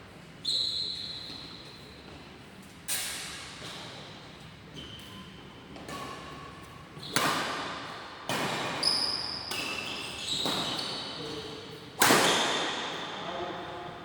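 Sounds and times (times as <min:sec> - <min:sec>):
shoes squeaking on court: 0:00.4 - 0:02.3, 0:04.7 - 0:07.2, 0:08.6 - 0:11.7
rackets hitting shuttlecock: 0:05.8 - 0:10.9, 0:12.0 - 0:13.0.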